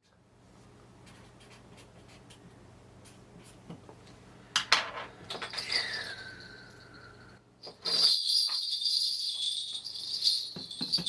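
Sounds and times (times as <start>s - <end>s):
small bells jangling: 5.4s - 11.0s.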